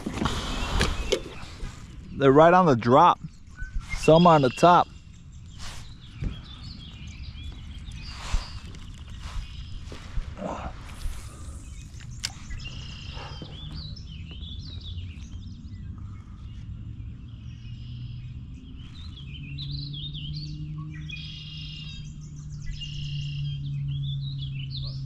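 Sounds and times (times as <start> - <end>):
songbirds chirping and singing: 0.0 - 25.0
sharp click: 12.0 - 12.6.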